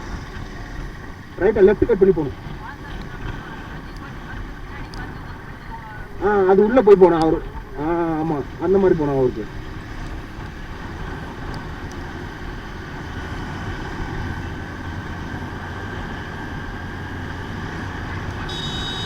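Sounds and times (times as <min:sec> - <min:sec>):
motorcycle engine: 0:00.0 - 0:19.0
high-pitched tone: 0:18.5 - 0:19.0.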